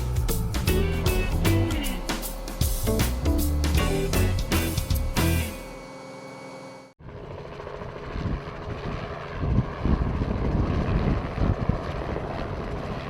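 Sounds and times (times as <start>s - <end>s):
wind buffeting microphone: 7.8s - 13.0s.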